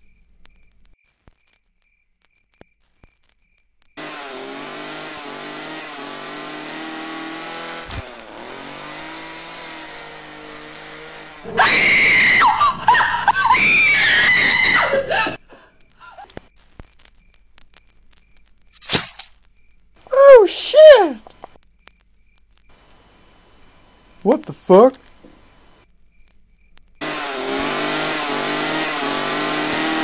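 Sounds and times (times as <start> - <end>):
chainsaw engine running: 4.0 - 15.4, 27.0 - 30.0
loud scream: 11.4 - 15.4, 20.1 - 21.2.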